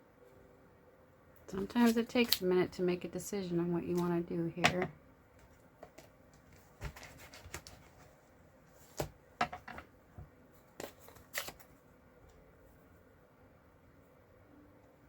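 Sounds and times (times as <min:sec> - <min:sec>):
paper rustling: 0:05.9 - 0:09.1, 0:10.7 - 0:11.8.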